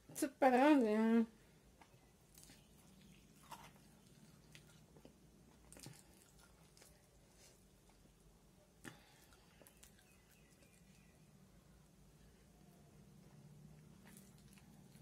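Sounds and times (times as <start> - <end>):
faint low hum: 0.0 - 15.0
chewing: 1.8 - 8.2, 8.8 - 11.2, 13.2 - 15.0.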